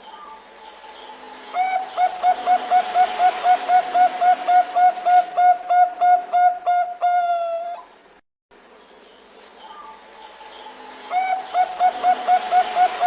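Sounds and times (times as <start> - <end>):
dove cooing: 1.6 - 7.9, 11.1 - 13.0.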